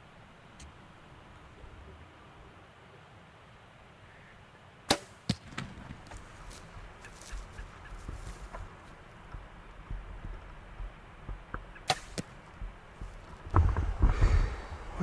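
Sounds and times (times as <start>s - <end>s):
sharp crack: 4.9s - 8.6s, 11.5s - 15.0s
bowstring snap: 11.9s - 12.3s.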